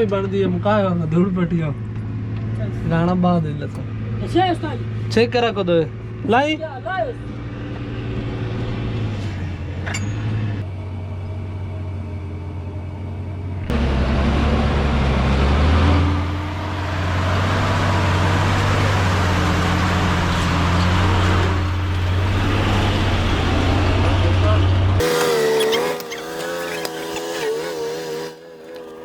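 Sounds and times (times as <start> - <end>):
heavy truck engine running: 7.2 - 29.0.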